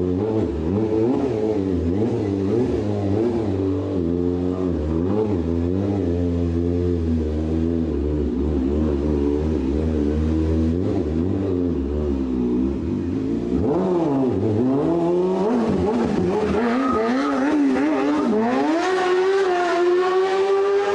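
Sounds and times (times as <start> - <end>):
motorcycle engine revving: 0.0 - 20.9.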